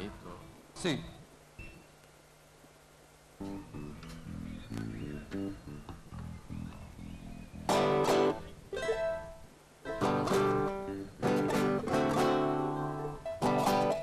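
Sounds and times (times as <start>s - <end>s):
acoustic guitar strumming chords: 7.6s - 14.0s.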